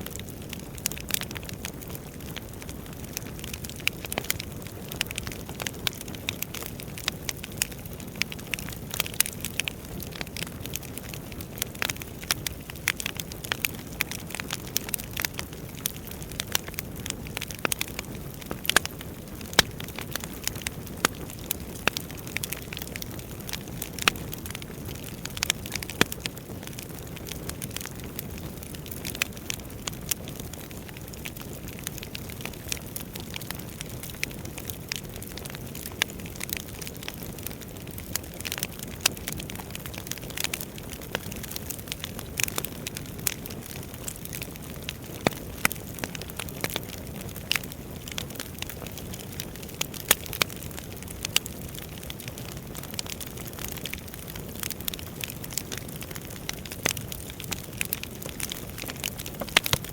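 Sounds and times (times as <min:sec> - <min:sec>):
wood fire crackling in fireplace: 0:00.0 - 0:59.9.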